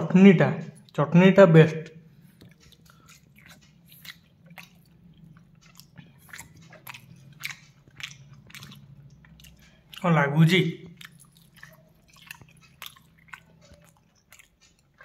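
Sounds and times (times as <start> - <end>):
person chewing: 0.7 - 1.0, 2.1 - 15.0
wet mouth clicks and smacks: 2.3 - 10.1, 10.8 - 15.0.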